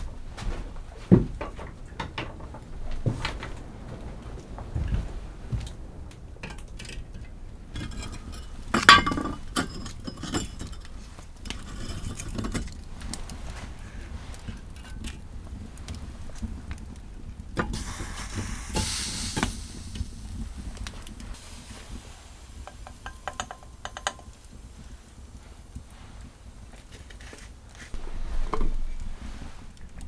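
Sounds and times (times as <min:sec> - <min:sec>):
strong wind rumble: 0:02.6 - 0:08.8, 0:15.2 - 0:26.6
rush of hiss: 0:17.7 - 0:26.7.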